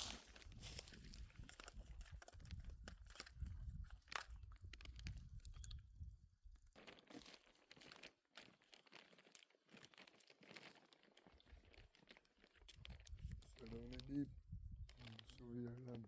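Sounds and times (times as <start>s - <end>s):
crunching footsteps: 0.0s - 1.2s.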